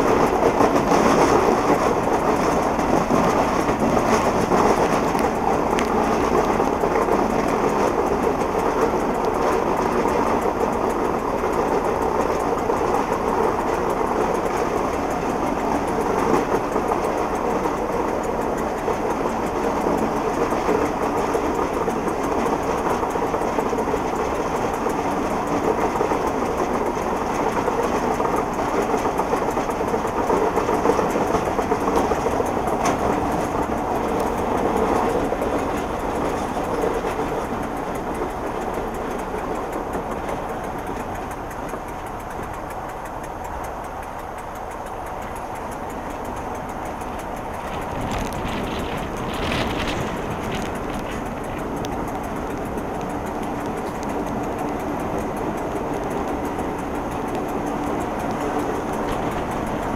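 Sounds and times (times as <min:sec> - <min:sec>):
diesel locomotive engine: 0:00.0 - 0:59.9
train wheels rumbling on rails: 0:00.0 - 0:59.9.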